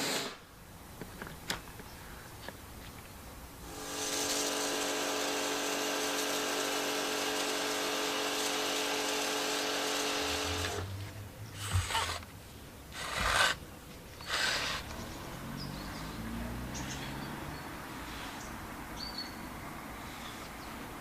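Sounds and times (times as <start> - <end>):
pressure washer motor whining: 3.7 - 11.0.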